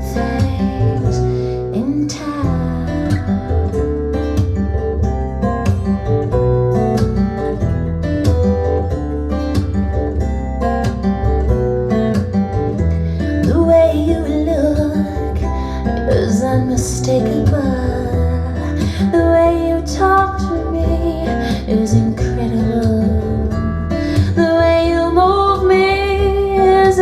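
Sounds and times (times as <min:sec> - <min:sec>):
acoustic guitar music with bass: 0:00.0 - 0:27.0
person singing: 0:13.2 - 0:27.0.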